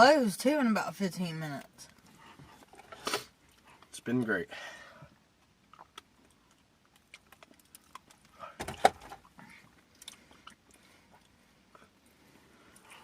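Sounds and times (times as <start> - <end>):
chewing: 1.9 - 3.9, 5.4 - 8.6, 9.2 - 13.0.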